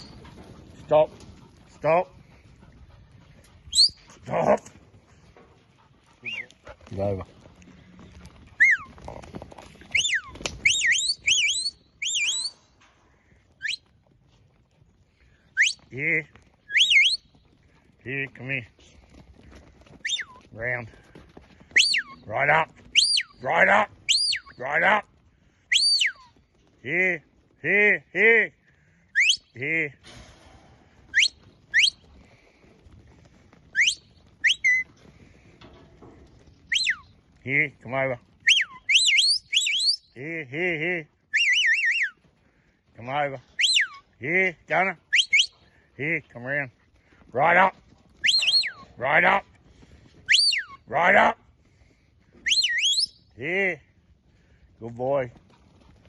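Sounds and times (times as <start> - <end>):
person whistling commands: 6.2 - 6.5, 41.3 - 42.2, 43.6 - 44.0, 45.1 - 45.6, 48.2 - 48.8, 50.3 - 50.8, 52.5 - 53.2.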